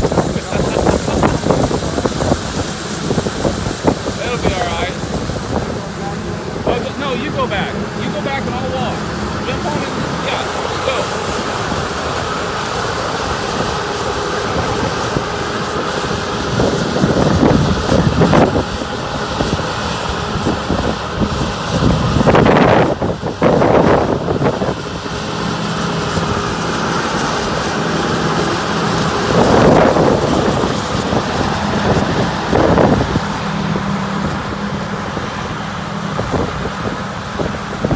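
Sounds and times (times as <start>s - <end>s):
harvest machinery engine drone: 0.0s - 37.9s.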